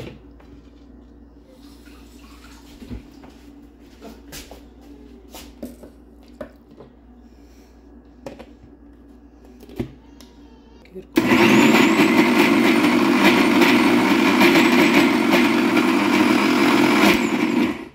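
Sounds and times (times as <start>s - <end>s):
low steady hum: 0.0s - 11.2s.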